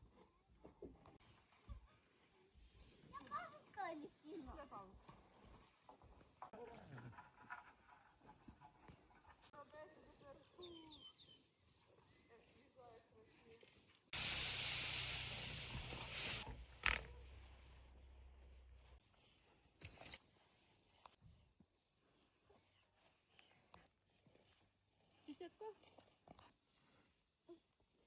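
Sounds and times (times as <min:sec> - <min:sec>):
insects chirping: 0:09.6 - 0:19.0.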